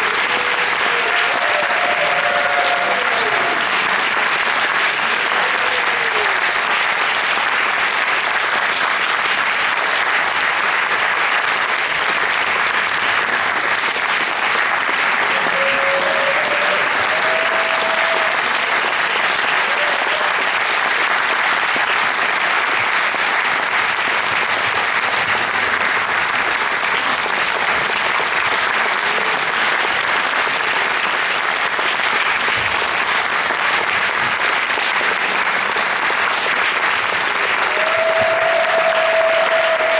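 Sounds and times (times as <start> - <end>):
audience applauding: 0.0 - 39.9.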